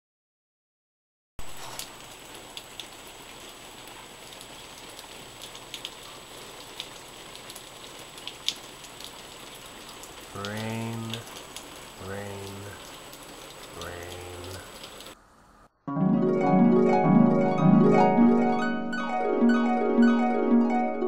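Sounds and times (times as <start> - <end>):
rain falling steadily: 1.4 - 15.7
raindrops ticking: 1.5 - 15.2
low voice: 10.3 - 11.3, 12.0 - 12.8, 13.7 - 14.7.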